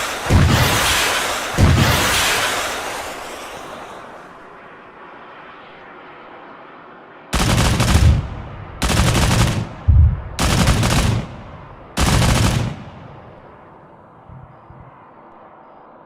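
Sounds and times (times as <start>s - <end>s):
autocannon firing rapid bursts: 0.0s - 2.6s, 7.4s - 13.5s
short bang: 9.9s - 10.4s.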